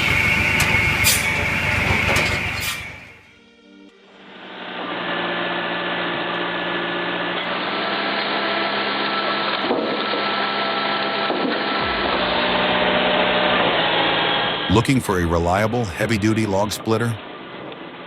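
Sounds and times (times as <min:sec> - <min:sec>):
firewood machine humming: 0:00.0 - 0:03.3, 0:04.4 - 0:09.6.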